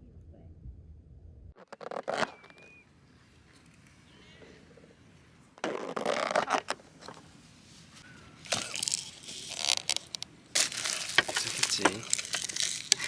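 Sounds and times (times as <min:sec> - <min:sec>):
plastic packaging crinkling: 0:05.7 - 0:13.0.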